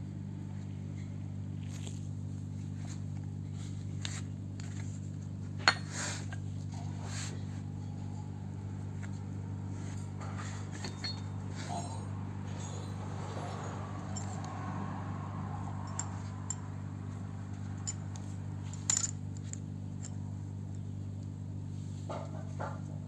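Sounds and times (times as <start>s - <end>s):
steady low hum: 0.0s - 23.0s
metal tools clinking: 9.0s - 20.2s.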